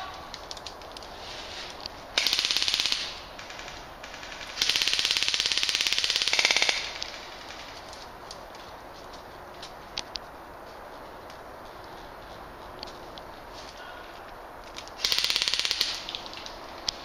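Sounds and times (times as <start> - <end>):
airsoft gun full-auto bursts: 2.2 - 7.7, 15.0 - 16.1.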